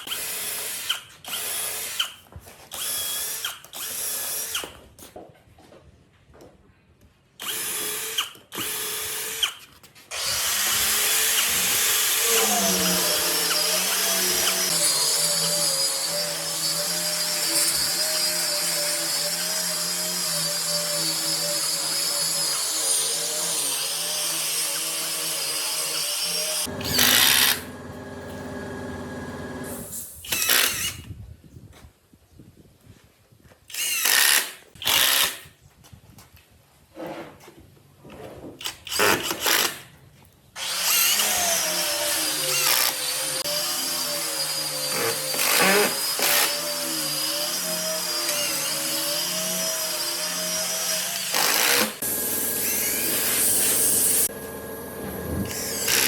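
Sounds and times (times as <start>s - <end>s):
electric drill motor running: 2.7s - 4.7s, 7.4s - 31.0s, 40.6s - 56.0s.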